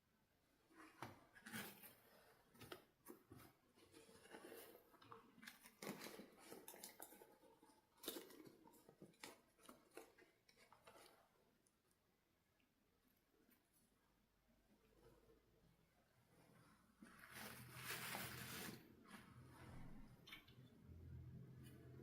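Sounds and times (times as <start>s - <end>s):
plastic packaging rustling: 17.2s - 18.9s.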